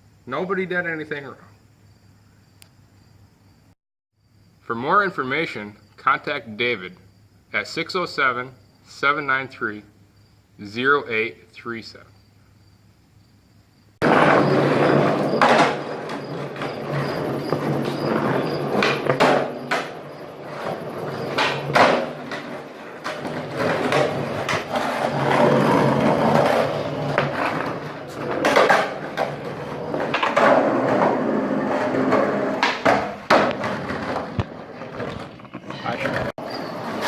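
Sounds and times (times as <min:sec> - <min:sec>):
skateboard clacks: 0:14.0 - 0:37.0
skateboard wheels rolling on pavement: 0:14.0 - 0:37.0.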